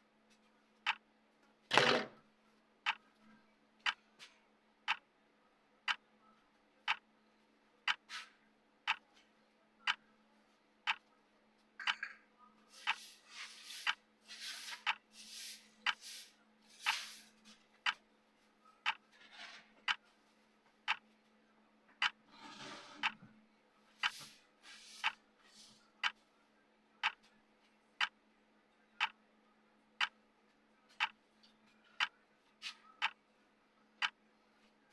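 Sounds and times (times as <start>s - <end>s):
clock ticking: 0.8s - 1.0s, 2.8s - 3.1s, 3.8s - 4.0s, 4.9s - 5.1s, 6.9s - 7.1s, 7.8s - 8.1s, 8.8s - 9.1s, 9.8s - 10.1s, 10.8s - 11.1s, 14.7s - 15.1s, 16.8s - 17.0s, 17.8s - 18.0s, 18.8s - 19.1s, 19.9s - 20.1s, 20.9s - 21.1s, 22.0s - 22.2s, 23.0s - 23.2s, 26.0s - 26.2s, 27.0s - 27.3s, 28.0s - 28.2s, 29.0s - 29.2s, 30.0s - 30.2s, 30.9s - 31.2s, 32.0s - 32.2s, 33.0s - 33.2s, 34.0s - 34.2s.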